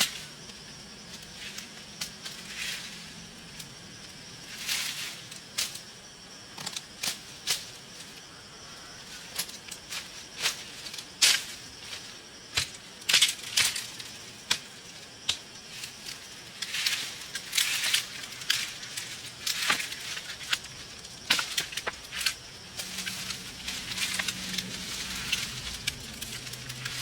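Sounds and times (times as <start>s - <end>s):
dry plant material crunching: 16.1s - 27.0s.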